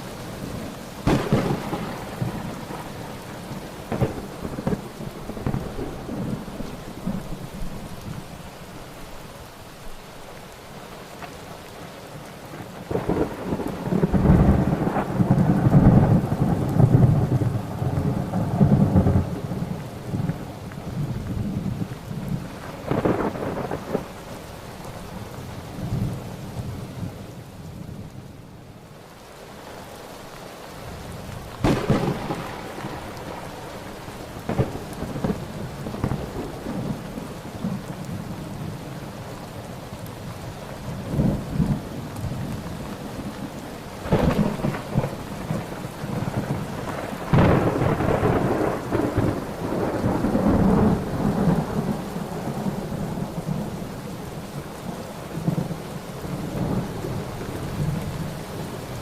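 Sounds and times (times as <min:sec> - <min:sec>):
steady rain: 0:00.0 - 0:59.0
thunder claps and rumbles: 0:01.0 - 0:08.2, 0:12.8 - 0:24.3, 0:31.0 - 0:38.8, 0:41.0 - 0:54.7.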